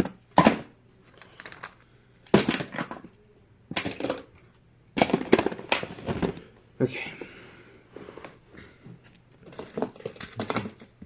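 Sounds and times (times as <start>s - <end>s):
plastic toys clattering: 0.0s - 6.4s, 9.4s - 11.0s.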